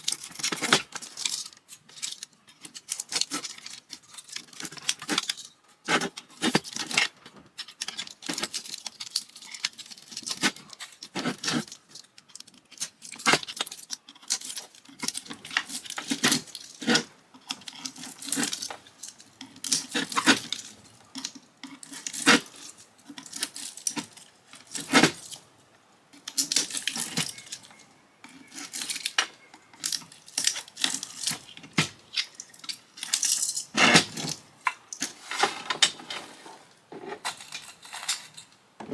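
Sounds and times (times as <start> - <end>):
metal parts and tools clinking: 26.2 - 36.1, 37.1 - 38.6.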